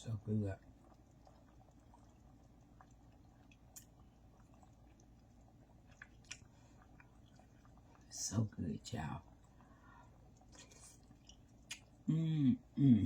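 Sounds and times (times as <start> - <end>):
faint chewing: 0.6 - 8.2, 9.2 - 12.2
small mouth clicks: 5.9 - 6.5, 10.5 - 12.2.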